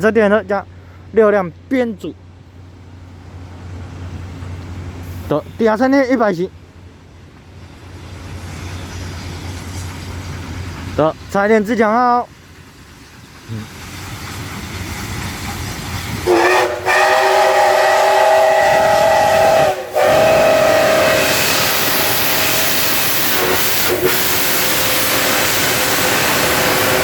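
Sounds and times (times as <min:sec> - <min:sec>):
rumble of approaching train: 0:00.0 - 0:27.0
steam hissing: 0:07.5 - 0:27.0
steam locomotive whistle: 0:16.2 - 0:27.0.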